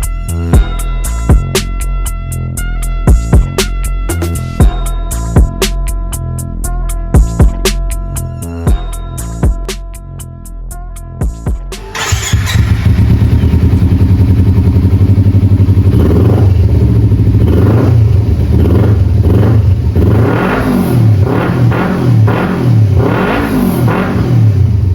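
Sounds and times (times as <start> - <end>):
motorcycle engine revving: 11.8 - 24.9.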